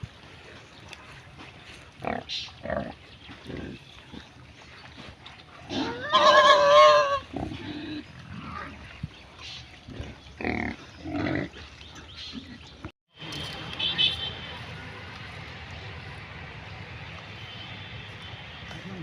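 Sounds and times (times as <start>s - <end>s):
pig squealing: 5.7s - 8.7s.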